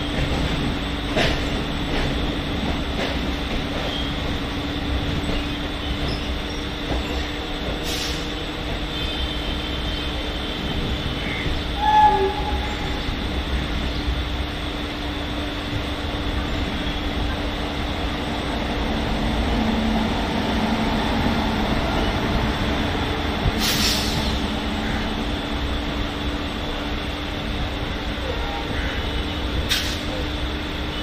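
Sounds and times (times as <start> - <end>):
train wheels rumbling on track: 0.0 - 31.0
short hiss: 23.6 - 24.4.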